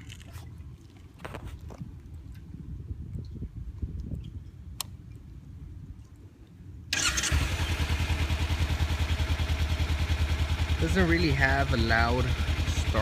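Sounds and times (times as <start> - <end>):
motorcycle engine starting and idling: 6.9 - 13.0.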